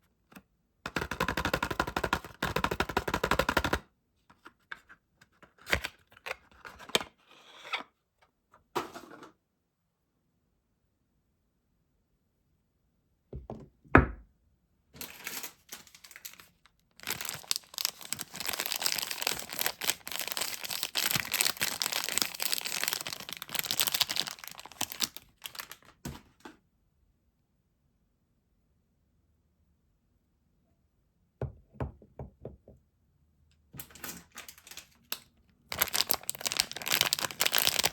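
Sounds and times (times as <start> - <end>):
wrapper tearing and crinkling: 15.0 - 26.0, 35.7 - 37.9.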